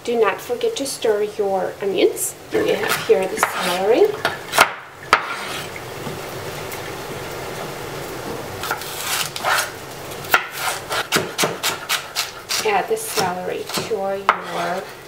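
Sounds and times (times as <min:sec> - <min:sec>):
steady hiss: 0:00.1 - 0:15.0
knife chopping on wooden board: 0:02.8 - 0:05.6, 0:10.3 - 0:14.8.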